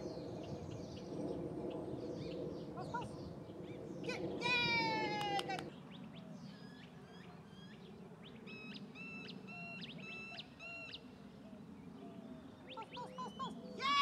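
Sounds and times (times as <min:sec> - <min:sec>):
bird chirping: 0:05.6 - 0:14.0.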